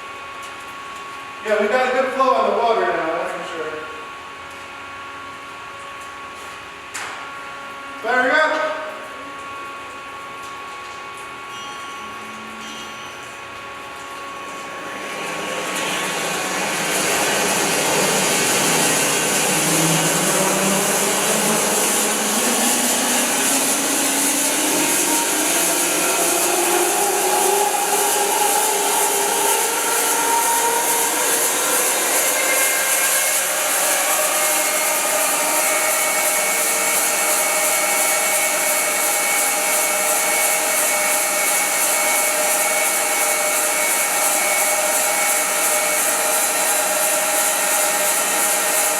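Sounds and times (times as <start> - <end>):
bandsaw mill sawing wood: 14.8 - 48.9.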